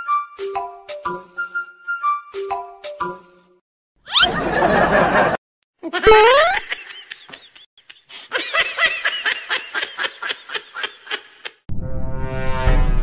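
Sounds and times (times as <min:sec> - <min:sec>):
high-pitched laughter: 0:04.1 - 0:11.6.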